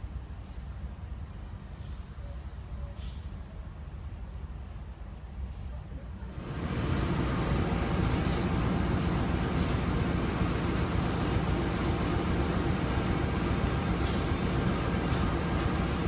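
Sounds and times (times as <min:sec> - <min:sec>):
train wheels rumbling on track: 0:00.0 - 0:16.0
short hisses: 0:14.0 - 0:14.4.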